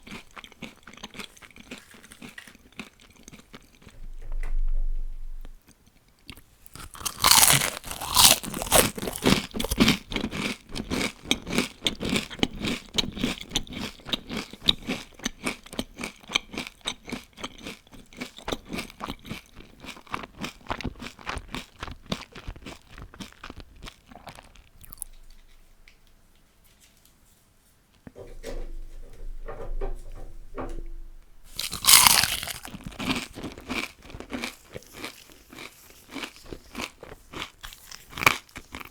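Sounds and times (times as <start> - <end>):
crunching chewing: 0.0 - 4.0, 6.2 - 26.0, 31.5 - 38.9
crunchy bite into fried food: 6.7 - 11.1, 31.5 - 38.9.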